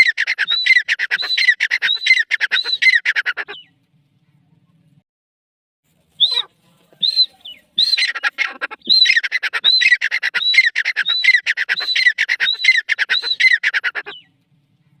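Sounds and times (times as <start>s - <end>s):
francolin calling: 6.2s - 14.3s.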